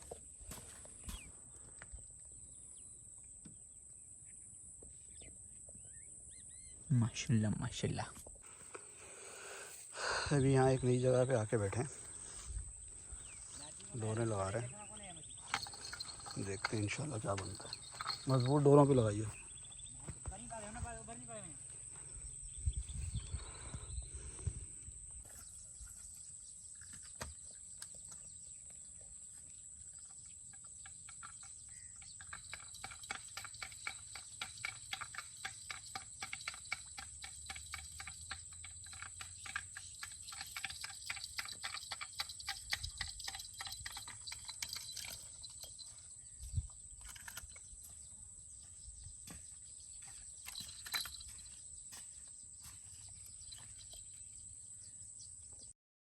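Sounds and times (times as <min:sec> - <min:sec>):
fast rattling call: 0:13.2 - 0:19.4, 0:31.1 - 0:45.9.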